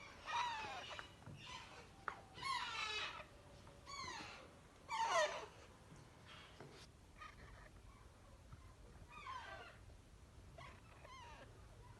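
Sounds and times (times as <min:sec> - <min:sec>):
parrot chicks begging calls: 0:00.0 - 0:01.8.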